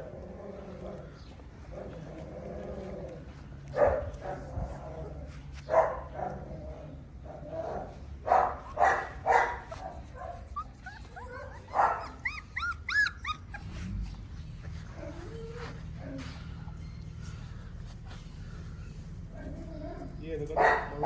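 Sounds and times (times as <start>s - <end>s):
puppies barking: 3.7s - 6.5s, 7.3s - 15.2s, 18.4s - 21.0s
puppy whining and yelping: 9.6s - 17.5s.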